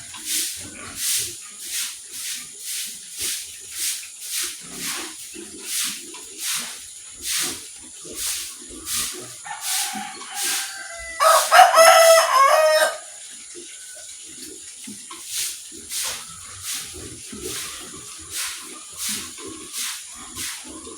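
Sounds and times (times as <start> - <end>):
short hissing sound: 8.2 - 11.6
rooster crowing: 9.4 - 13.2.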